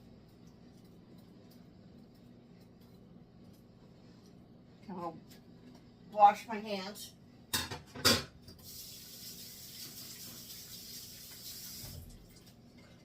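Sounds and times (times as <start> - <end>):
faucet running: 8.6 - 12.6.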